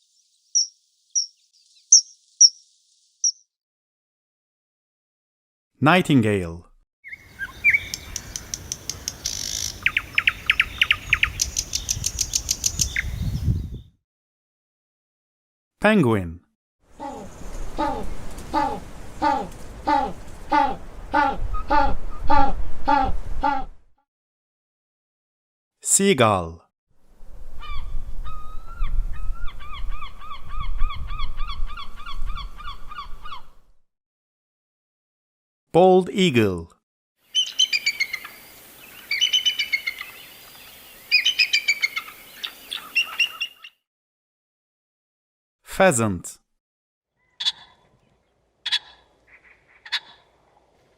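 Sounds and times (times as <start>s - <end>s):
nightingale singing: 0.0s - 3.5s, 7.0s - 14.0s, 37.3s - 43.8s
seagull calling: 7.1s - 13.0s, 37.4s - 38.4s, 41.1s - 43.7s.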